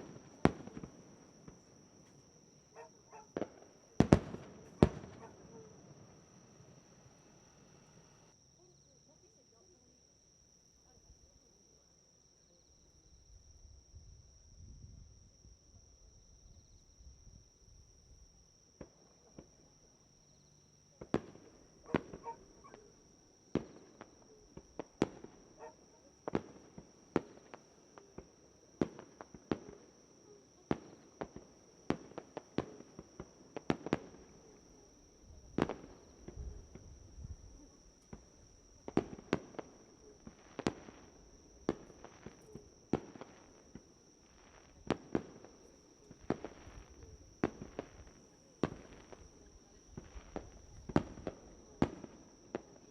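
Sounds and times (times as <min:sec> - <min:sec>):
fireworks bursting: 0:00.0 - 0:08.3, 0:21.0 - 0:30.1, 0:30.7 - 0:52.9.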